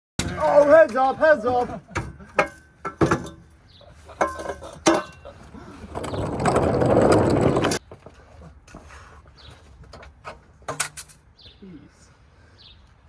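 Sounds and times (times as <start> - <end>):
metal tools knocking on car parts: 0.2 - 5.4
mechanical rattling: 4.3 - 7.8.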